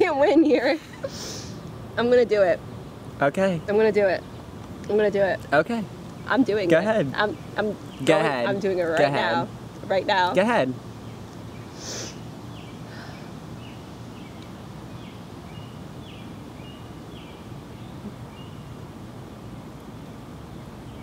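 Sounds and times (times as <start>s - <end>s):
outdoor background rumble: 0.0s - 21.0s
breathy hiss: 0.9s - 1.6s, 11.7s - 13.4s
small bird chirping: 6.1s - 18.8s.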